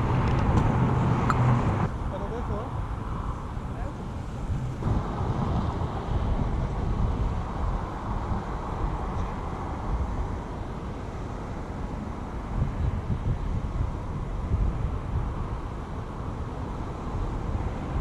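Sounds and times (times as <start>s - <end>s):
road and wind noise: 0.0s - 18.0s.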